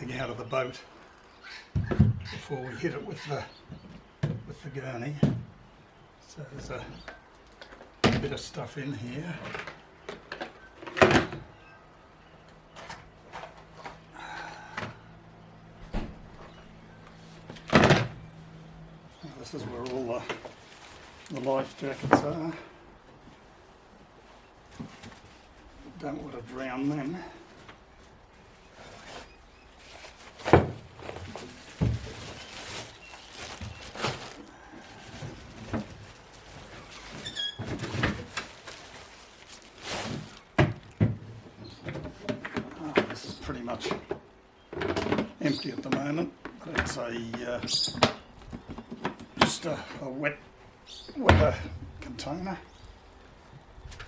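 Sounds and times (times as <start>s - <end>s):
short rustle: 23.2s - 40.6s.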